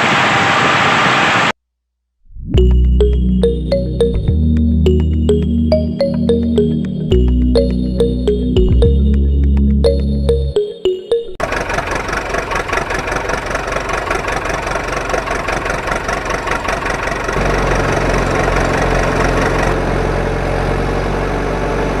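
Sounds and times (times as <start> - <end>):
deep engine idle: 11.4 - 19.8
tractor engine knocking: 11.4 - 19.8.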